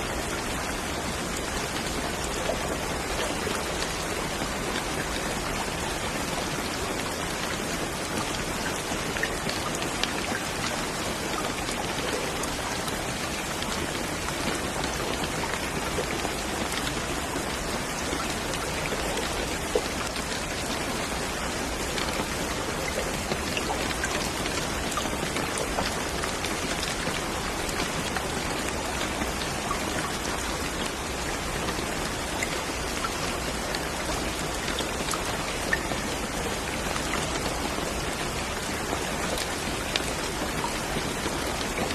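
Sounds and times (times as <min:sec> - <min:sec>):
steady rain hiss: 0:00.0 - 0:41.9
raindrops ticking: 0:00.1 - 0:41.9.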